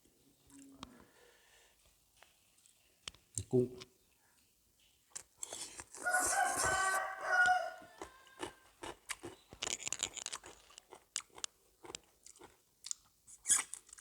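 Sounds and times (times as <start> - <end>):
chewing and crunching food: 5.1 - 14.0
rooster crowing: 6.0 - 8.7.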